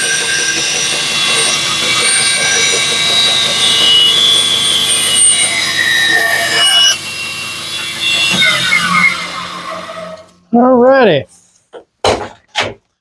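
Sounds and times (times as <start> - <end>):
bandsaw cutting wood: 0.0 - 10.4.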